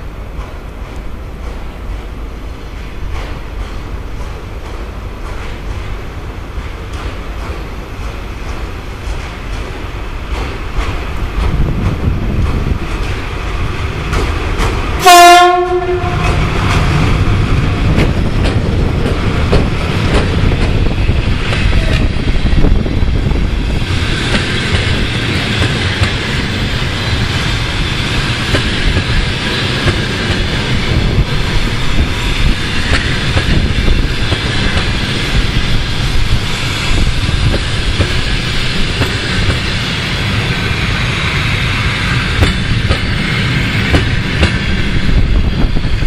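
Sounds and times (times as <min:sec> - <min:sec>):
train wheel rumble: 0:00.0 - 0:46.0
clicking over rail joints: 0:00.3 - 0:17.3, 0:17.9 - 0:22.1, 0:24.3 - 0:26.6, 0:27.4 - 0:35.5, 0:42.4 - 0:43.1, 0:43.9 - 0:44.7
locomotive horn blast: 0:15.0 - 0:16.5.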